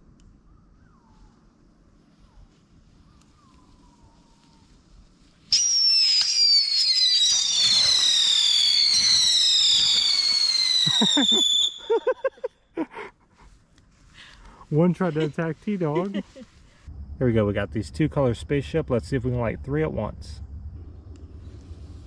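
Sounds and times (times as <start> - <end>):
whistling firework: 5.4 - 12.2.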